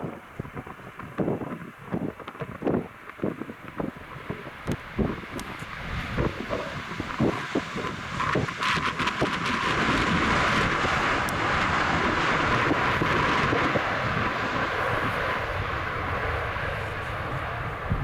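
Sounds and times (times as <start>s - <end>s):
jet engines of passing airliner: 0.0s - 18.0s.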